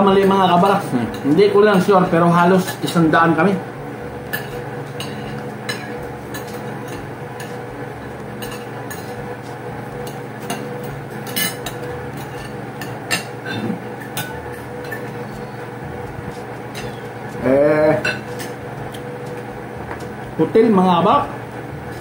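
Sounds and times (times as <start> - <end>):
steady low hum: 0.0 - 22.0
cutlery clinking on plates: 4.3 - 7.6, 8.4 - 9.2, 10.0 - 15.2, 18.0 - 18.6.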